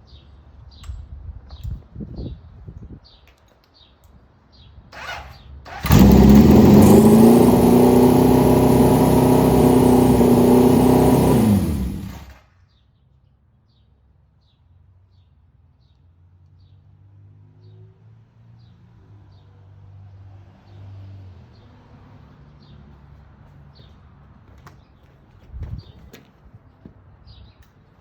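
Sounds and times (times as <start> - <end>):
motorcycle engine running: 5.7 - 12.4.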